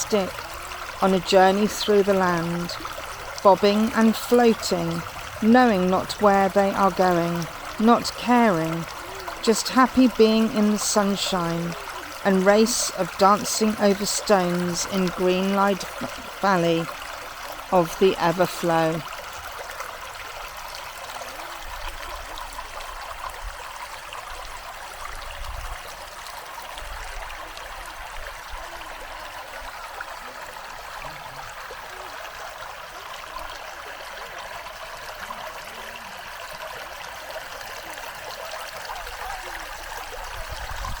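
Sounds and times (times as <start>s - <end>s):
stream babbling over stones: 0.0s - 41.0s.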